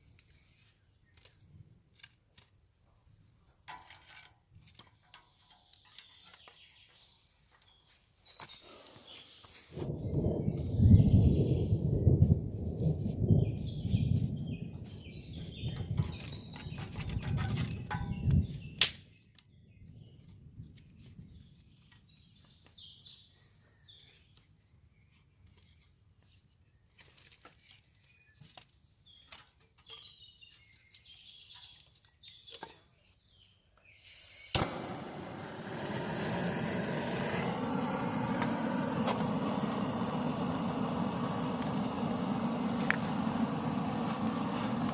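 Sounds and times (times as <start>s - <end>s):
small birds chirping: 4.5s - 12.2s, 12.8s - 44.9s
low rumble: 34.6s - 44.9s
steady rushing noise: 34.6s - 44.9s.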